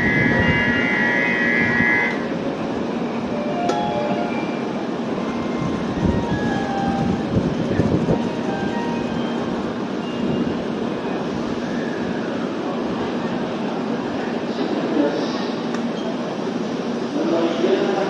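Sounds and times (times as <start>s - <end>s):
high steady tone: 0.0s - 2.3s
train rail rumble: 0.0s - 18.0s.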